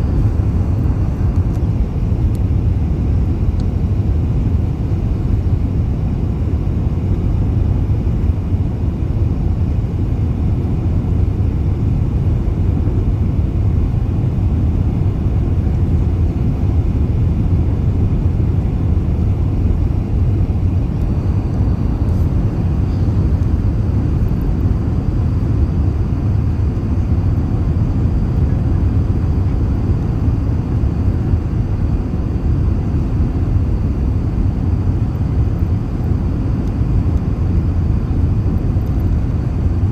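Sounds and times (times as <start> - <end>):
airliner low rumble: 0.0 - 39.9
faint high whine: 18.0 - 39.9.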